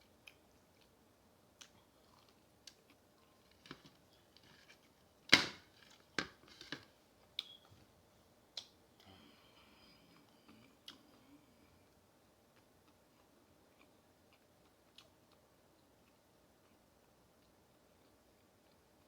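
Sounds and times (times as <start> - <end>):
crunchy food chewing: 1.6 - 5.0, 12.5 - 19.0.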